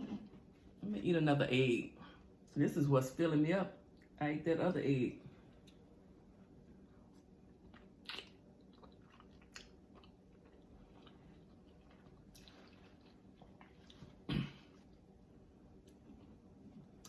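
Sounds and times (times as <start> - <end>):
person chewing: 7.0 - 17.0.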